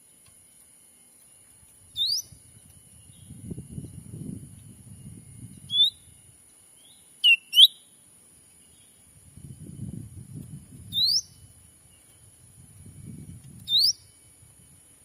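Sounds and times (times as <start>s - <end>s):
steady high hiss: 0.0s - 15.0s
whistled bird calls: 1.9s - 2.4s, 4.9s - 6.2s, 6.8s - 7.9s, 10.9s - 12.2s, 13.6s - 14.4s.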